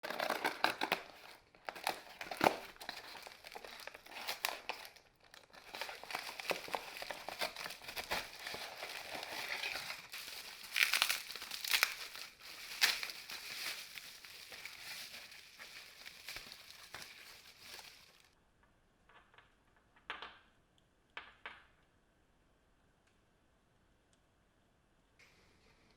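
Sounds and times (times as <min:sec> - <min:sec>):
crinkling and rustling: 0:00.0 - 0:18.4.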